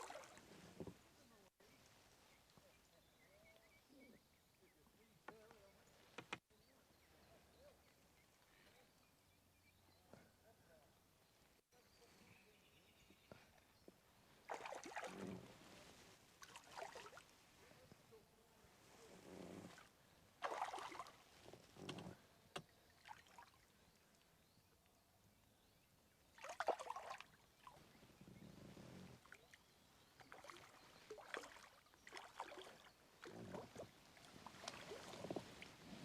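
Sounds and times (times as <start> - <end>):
water splashing: 0.0 - 0.6, 14.5 - 17.3, 19.7 - 21.9, 26.4 - 27.8, 30.2 - 36.0.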